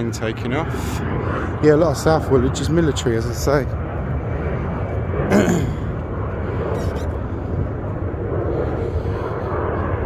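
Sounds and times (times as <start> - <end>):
plane taking off rumble: 0.0 - 10.0.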